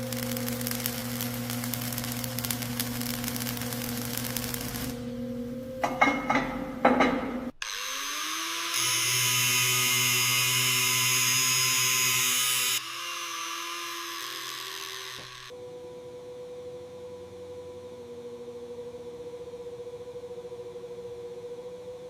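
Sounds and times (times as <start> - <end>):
power tool motor humming: 7.6 - 15.6
power tool whining: 7.6 - 15.6.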